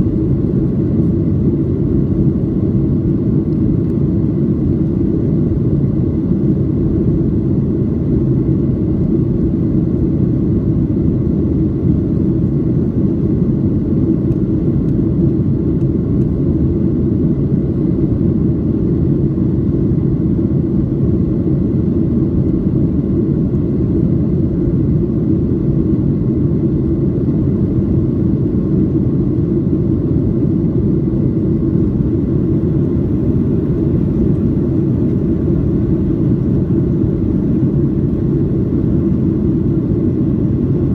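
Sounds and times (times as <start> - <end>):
aircraft cabin engine rumble: 0.0 - 40.9.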